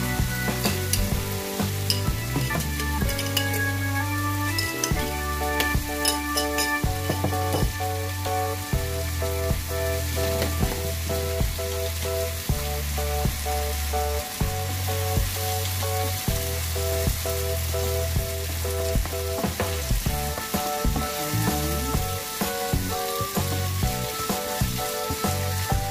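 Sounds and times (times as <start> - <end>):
background music with steady beat: 0.0 - 25.9
meat sauce sizzling in frying pan: 0.0 - 25.9
wooden spoon stirring: 2.6 - 3.8, 4.4 - 7.7.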